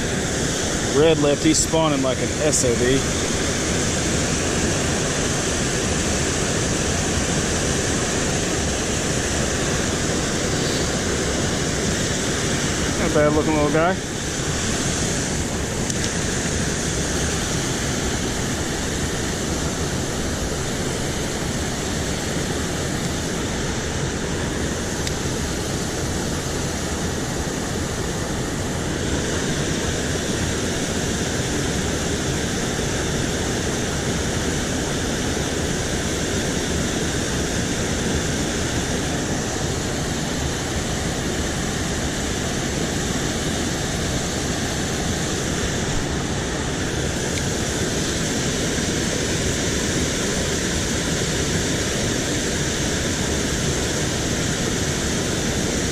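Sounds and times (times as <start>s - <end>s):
water rushing over spillway: 0.0s - 55.9s.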